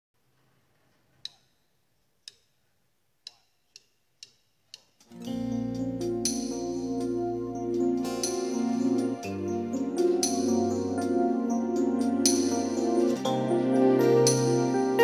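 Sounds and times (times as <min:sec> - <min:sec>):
count-in ticks: 0:01.2 - 0:02.6, 0:03.2 - 0:07.1.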